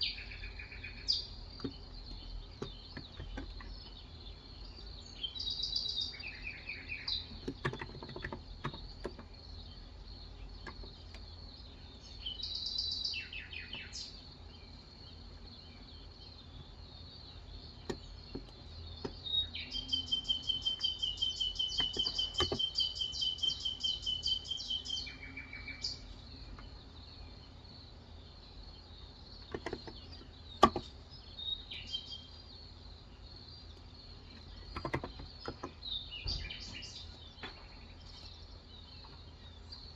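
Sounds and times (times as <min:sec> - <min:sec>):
bird trill: 0:00.0 - 0:10.8, 0:11.4 - 0:14.7, 0:17.1 - 0:28.6, 0:29.3 - 0:32.8
birds chirping: 0:00.0 - 0:39.9.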